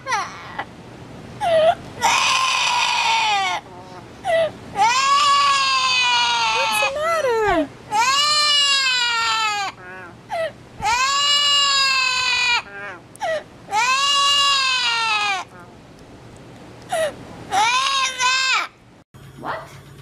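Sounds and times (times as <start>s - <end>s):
parrot crying calls: 1.4s - 7.0s, 7.9s - 10.2s, 10.8s - 13.0s, 13.7s - 15.5s.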